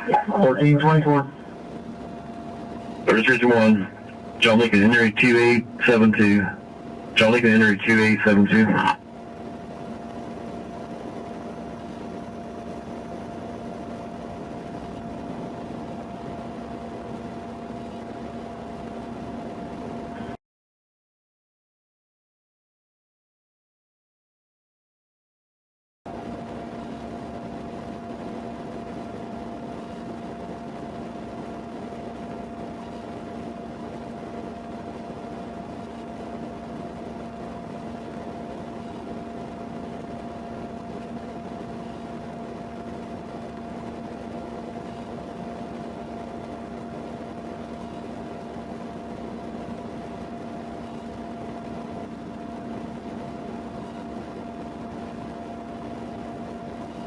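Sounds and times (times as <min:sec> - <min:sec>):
constant tones: 0:00.0 - 0:01.5
steady machine hum: 0:00.0 - 0:20.4, 0:26.1 - 0:57.0.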